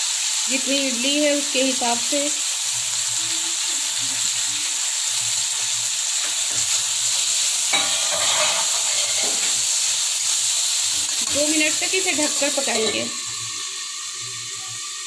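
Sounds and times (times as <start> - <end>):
vegetables sizzling in hot oil: 0.0 - 15.0
metal spatula scraping pan: 7.7 - 9.6.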